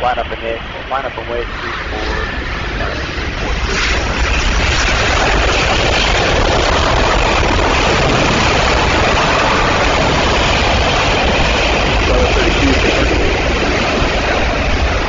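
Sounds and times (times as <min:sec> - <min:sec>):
jet engines roaring on landing: 0:00.0 - 0:15.0.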